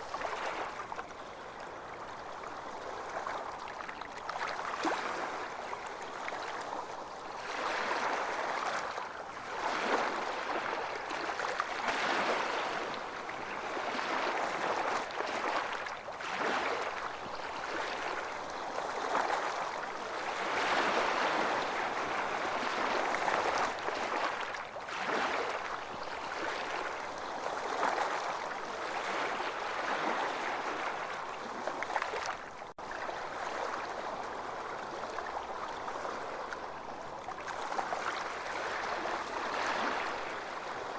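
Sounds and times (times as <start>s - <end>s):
ocean waves on beach: 0.0s - 40.9s.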